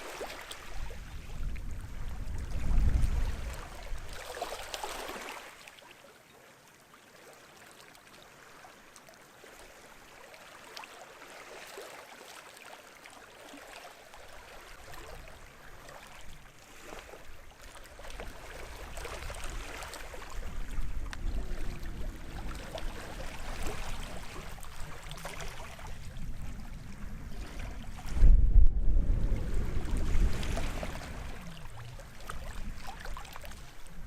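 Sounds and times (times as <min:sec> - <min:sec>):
small waves on shore: 0:00.0 - 0:34.0
wind rumble on microphone: 0:00.1 - 0:04.6, 0:14.5 - 0:34.0.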